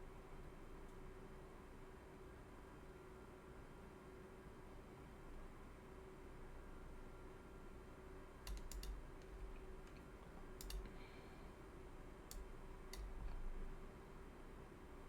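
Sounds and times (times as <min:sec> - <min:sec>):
faint steady hum: 0:00.0 - 0:15.0
computer mouse clicks: 0:08.5 - 0:11.0, 0:12.3 - 0:13.3.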